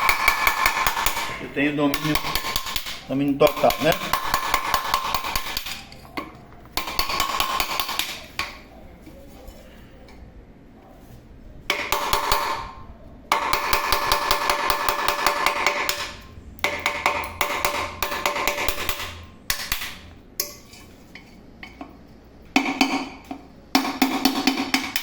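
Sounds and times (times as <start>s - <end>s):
hammering on metal: 0.0s - 5.9s, 6.7s - 8.6s, 11.7s - 20.6s, 22.6s - 25.0s.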